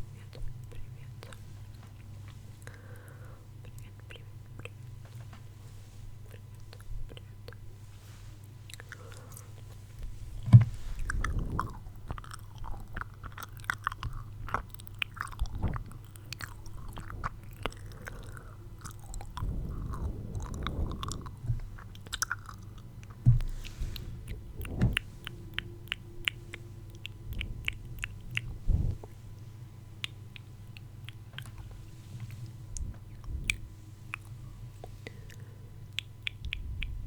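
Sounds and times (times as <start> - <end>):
low thumps: 10.1 - 11.7, 23.0 - 26.2, 27.2 - 29.1
wet mouth clicks and smacks: 30.0 - 31.7, 35.1 - 37.0.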